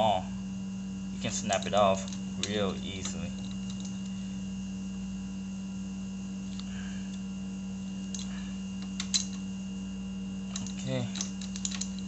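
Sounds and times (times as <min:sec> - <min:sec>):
electrical hum: 0:00.0 - 0:12.0
hex key metallic clicks: 0:01.4 - 0:04.2, 0:08.1 - 0:09.4, 0:10.5 - 0:12.0.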